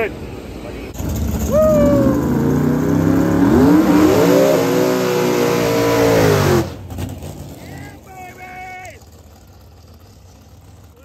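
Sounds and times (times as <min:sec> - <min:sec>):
car engine revving hard: 0:01.0 - 0:07.4.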